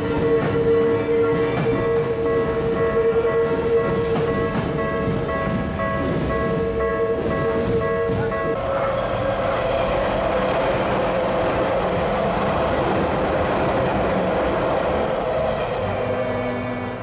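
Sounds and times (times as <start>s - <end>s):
music: 0.0s - 8.6s, 14.8s - 17.0s
electric train passing on rails: 0.0s - 17.0s.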